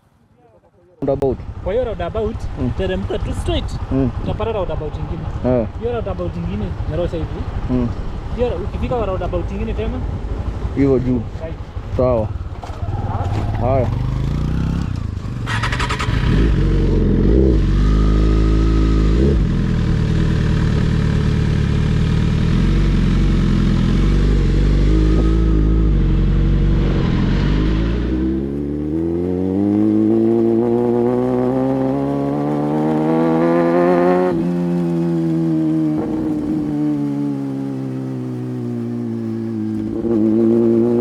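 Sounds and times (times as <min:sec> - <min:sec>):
motorcycle engine revving: 0:01.1 - 0:41.0
wind noise: 0:34.0 - 0:37.1.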